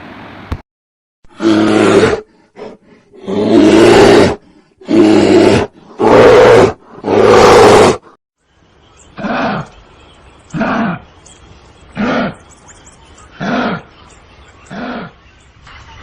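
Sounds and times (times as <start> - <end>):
big cat roaring: 1.3 - 8.1.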